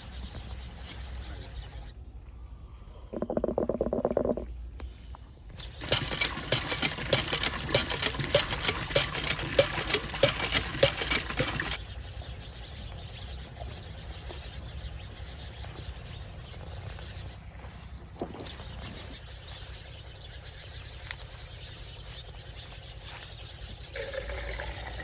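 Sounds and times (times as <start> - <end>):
faint outdoor background: 0.0 - 25.0
rhythmic mechanical clacking: 5.8 - 11.8.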